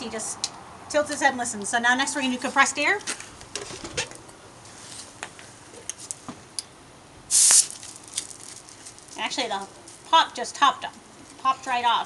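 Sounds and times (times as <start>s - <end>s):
compressed air blast: 7.3s - 7.7s.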